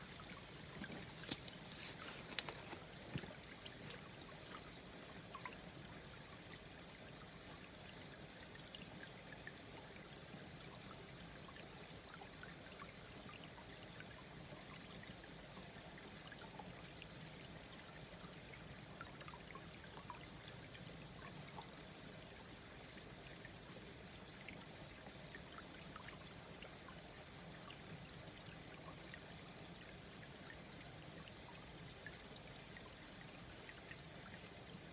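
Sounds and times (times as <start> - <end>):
stream babbling over stones: 0.0 - 5.8.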